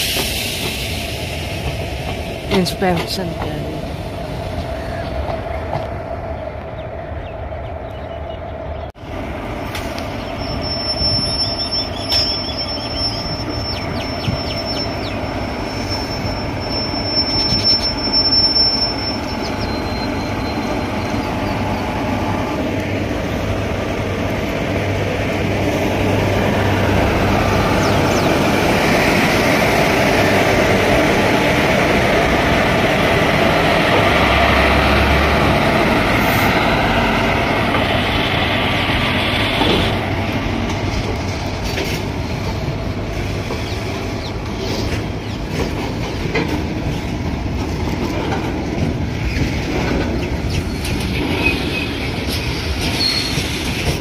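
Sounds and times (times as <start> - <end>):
train rumble: 0.0 - 54.0
high thin wheel squeal: 10.4 - 21.3, 52.8 - 53.6.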